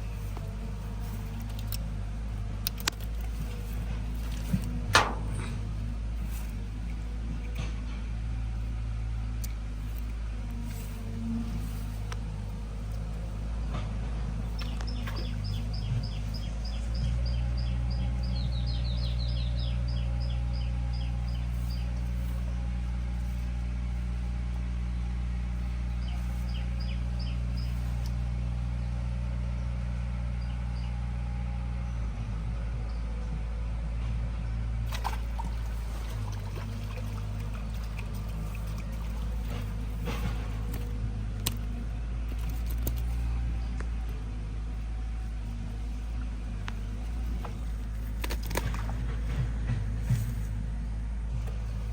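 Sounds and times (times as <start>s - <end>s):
low motor hum: 0.0s - 51.9s
bird chirping: 14.6s - 22.1s, 26.0s - 28.1s.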